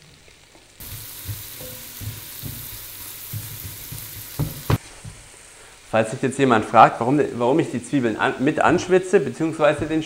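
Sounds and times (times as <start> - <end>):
onions and bacon sizzling in oil: 0.0 - 5.9
spatula stirring: 0.8 - 4.8
sharp knocks: 0.9 - 4.8.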